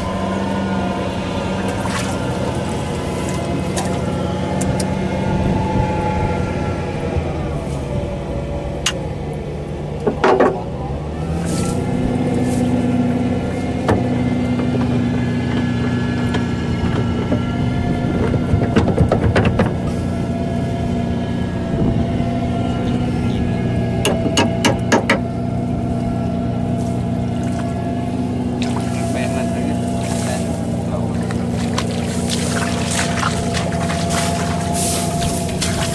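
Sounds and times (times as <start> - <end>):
tractor engine running: 0.0 - 35.9
sharp metallic knocks: 10.0 - 10.7, 24.0 - 25.3.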